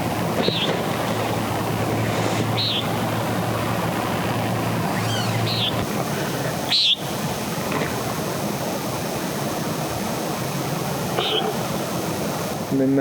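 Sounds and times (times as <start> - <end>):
low hum: 0.0 - 12.7
creek rushing: 0.0 - 13.0
animal chirping calls: 2.6 - 2.9, 4.9 - 5.8, 6.7 - 7.2.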